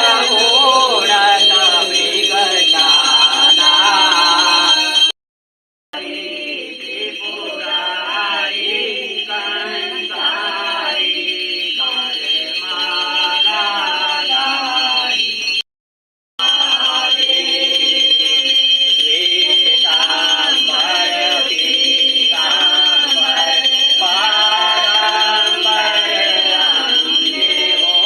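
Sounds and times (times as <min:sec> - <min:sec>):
person singing a hymn: 0:00.0 - 0:04.0, 0:19.1 - 0:28.0
steady high-pitched tone: 0:00.0 - 0:05.1, 0:16.4 - 0:28.0.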